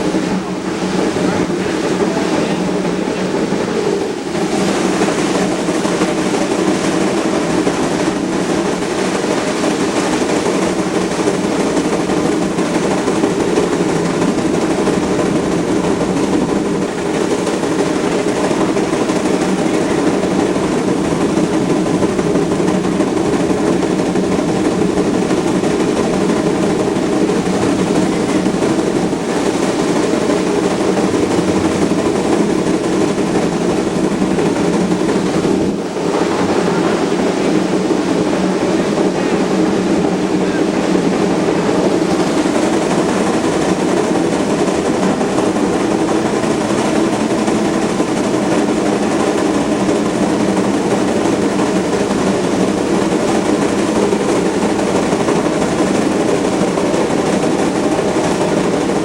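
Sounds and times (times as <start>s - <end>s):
steam train rumbling: 0.0s - 59.0s.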